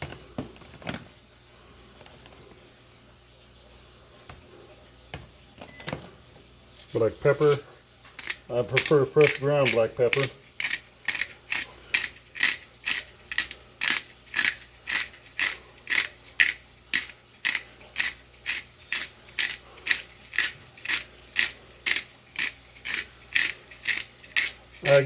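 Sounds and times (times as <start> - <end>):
pepper mill grinding: 6.8 - 25.0.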